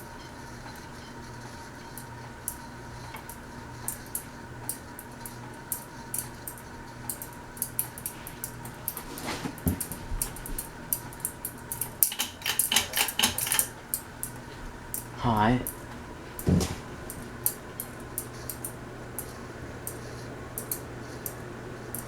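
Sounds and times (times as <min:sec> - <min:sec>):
steady electrical hum: 0:00.0 - 0:22.0
light metallic clinks and rattles: 0:09.8 - 0:15.8.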